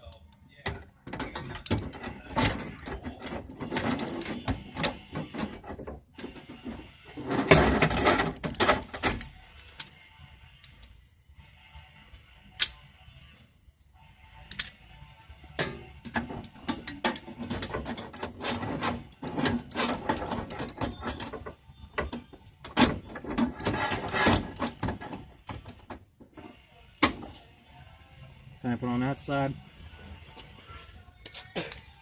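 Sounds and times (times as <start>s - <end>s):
metal clicking and clattering: 0.7s - 6.4s, 7.2s - 9.9s, 15.6s - 26.0s
dense metal rattling: 16.1s - 21.5s.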